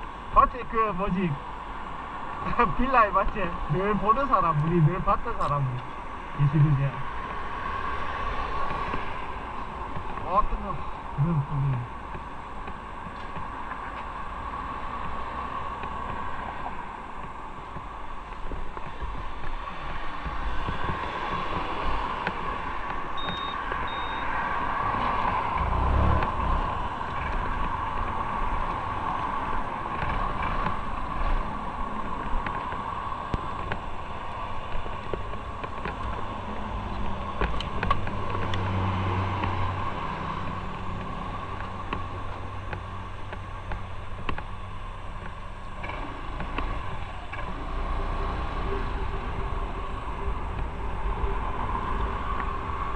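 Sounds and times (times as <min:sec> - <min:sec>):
wind rushing over microphone: 0:01.2 - 0:45.4
motorcycle engine drone: 0:02.4 - 0:52.9.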